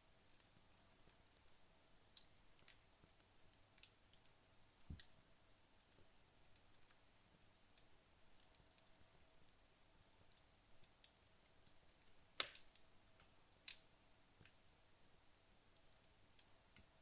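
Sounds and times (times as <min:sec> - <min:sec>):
logs crackling in fireplace: 0:00.0 - 0:17.0
fire popping: 0:10.1 - 0:13.8.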